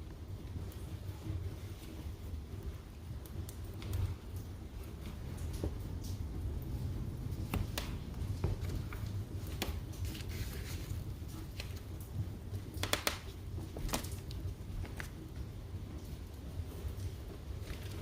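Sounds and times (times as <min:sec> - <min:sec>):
low steady rumble: 0:00.0 - 0:12.7
wood fire crackling: 0:00.0 - 0:18.0.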